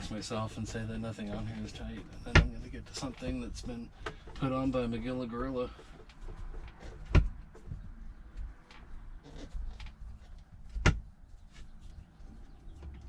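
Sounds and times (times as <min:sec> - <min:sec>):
faint clicks and rustling: 0:00.0 - 0:13.0
sharp knocks: 0:02.1 - 0:02.6.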